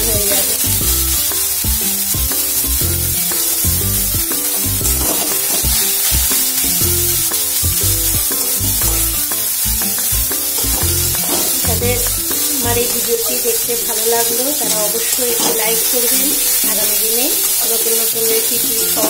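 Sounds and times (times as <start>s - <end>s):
background music with bass: 0.0s - 13.1s
food sizzling in oil: 0.0s - 19.0s
spatula scraping: 0.0s - 19.0s.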